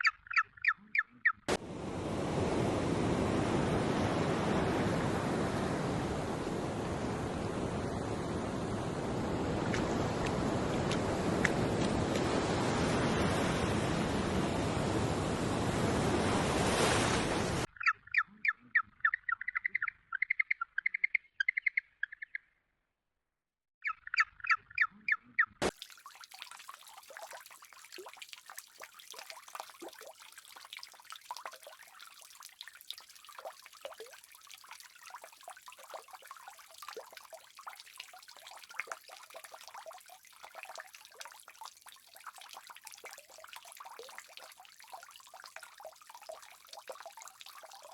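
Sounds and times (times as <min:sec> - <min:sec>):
rapid bird-like chirping: 0:00.0 - 0:01.5, 0:17.7 - 0:22.5, 0:23.8 - 0:25.6
water trickling: 0:25.7 - 0:47.9.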